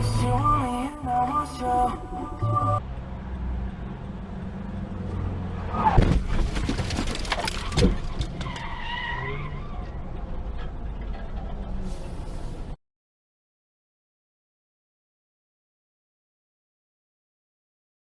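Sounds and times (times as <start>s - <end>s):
road and engine rumble: 0.0s - 12.8s
tyres skidding: 2.4s - 12.8s
loud car crash: 5.7s - 10.0s.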